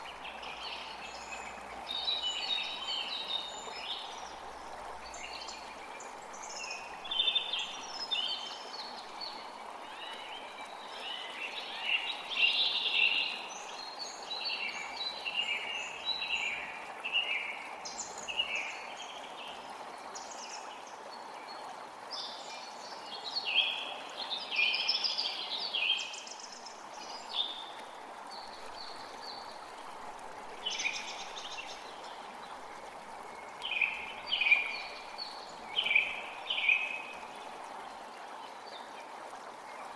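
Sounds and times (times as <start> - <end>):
creek water running: 0.0 - 39.9
songbirds singing: 30.6 - 38.9.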